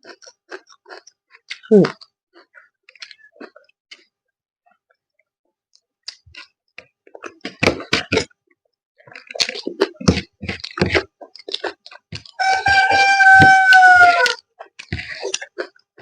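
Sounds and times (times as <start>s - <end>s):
chewing and smacking: 0.0s - 4.1s, 5.7s - 8.4s, 9.0s - 12.9s, 13.7s - 16.0s
rooster crowing: 12.4s - 14.4s.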